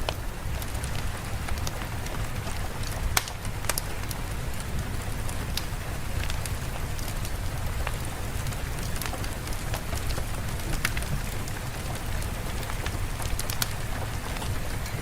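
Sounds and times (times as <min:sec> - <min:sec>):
rain drops ticking: 0:00.0 - 0:15.0
steady rain: 0:00.0 - 0:15.0.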